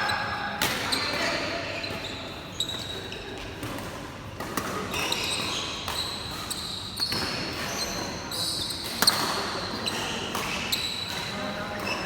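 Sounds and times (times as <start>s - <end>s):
rackets hitting shuttlecock: 8.8s - 12.0s.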